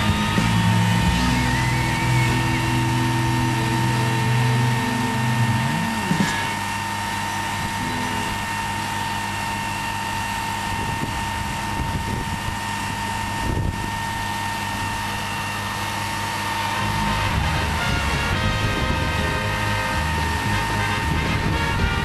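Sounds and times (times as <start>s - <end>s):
music track: 0.0s - 6.6s, 16.8s - 22.0s
engine drone with whine: 0.0s - 22.0s
wind: 0.0s - 22.0s.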